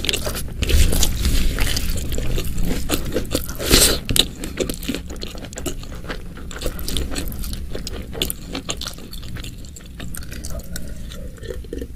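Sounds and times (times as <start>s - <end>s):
person chewing with wet smacks: 0.0s - 11.9s.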